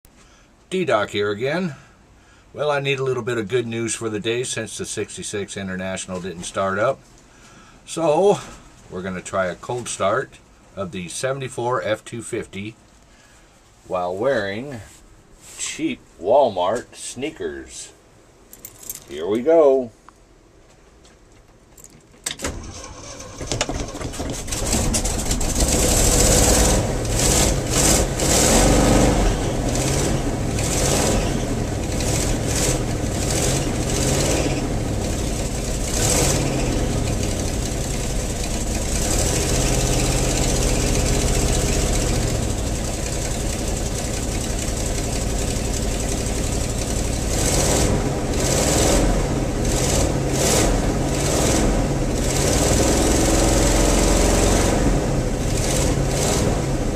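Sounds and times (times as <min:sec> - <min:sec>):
pickup engine starting and idling: 0:22.2 - 0:56.9.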